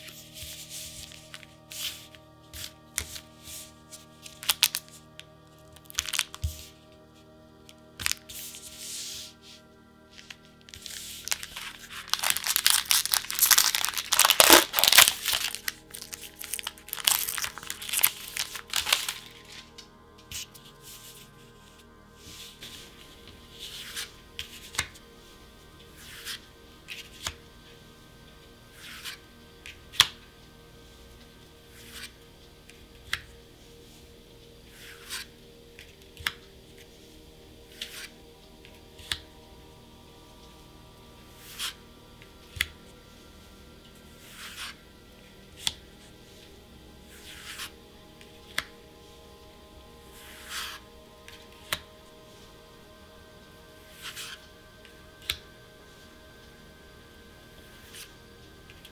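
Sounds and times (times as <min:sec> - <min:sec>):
plastic packaging crinkling: 0:04.4 - 0:04.9, 0:05.8 - 0:06.5, 0:10.7 - 0:19.8.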